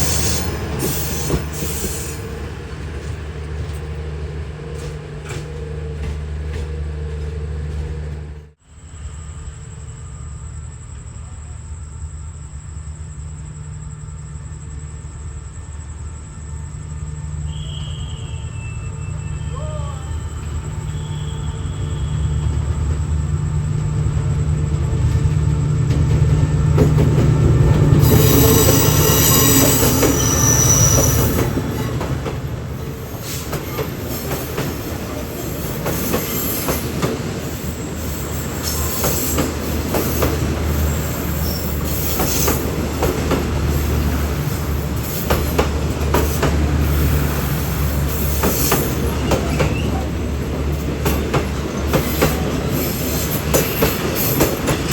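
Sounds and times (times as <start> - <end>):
high wheel squeal: 0.0 - 2.7, 17.5 - 22.6, 28.0 - 32.0, 32.8 - 42.8, 46.8 - 50.4
locomotive engine drone: 0.0 - 53.5.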